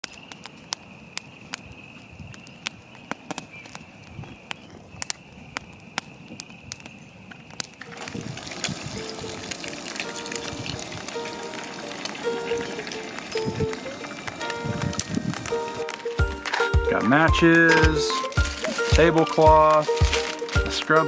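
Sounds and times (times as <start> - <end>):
campfire crackling and popping: 0.0 - 21.0
background music: 10.1 - 21.0.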